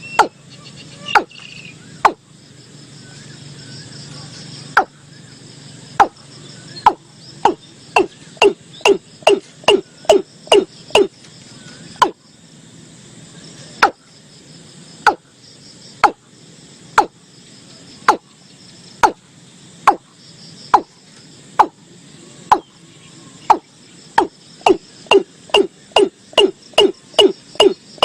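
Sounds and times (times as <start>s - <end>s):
bird calling with knocking notes: 0.0s - 2.3s, 4.2s - 5.1s, 5.9s - 12.2s, 13.8s - 14.1s, 15.0s - 15.3s, 16.0s - 16.2s, 17.0s - 17.2s, 18.0s - 19.2s, 19.9s - 20.1s, 20.7s - 21.8s, 22.5s - 22.8s, 23.4s - 28.0s
faint insects chirring: 0.0s - 28.0s.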